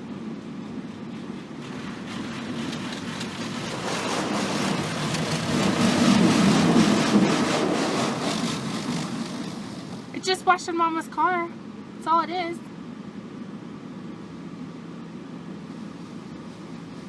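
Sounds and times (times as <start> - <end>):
water jets drumming on car: 1.6 - 10.4.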